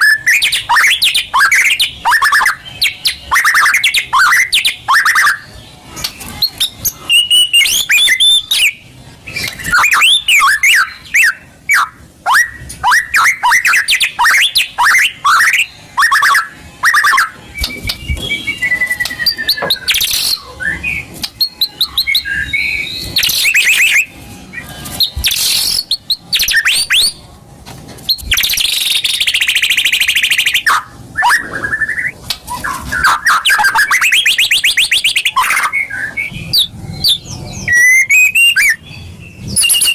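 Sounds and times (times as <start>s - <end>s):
harsh rasping bird chatter: 0.0s - 27.2s
songbird singing whistles and trills: 0.0s - 27.2s, 28.0s - 39.9s.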